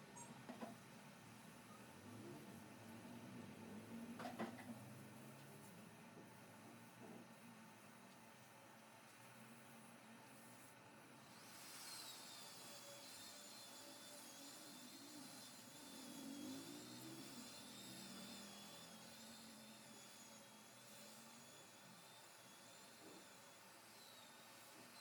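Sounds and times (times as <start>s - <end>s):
high whine of power-tool motor: 10.2s - 25.0s.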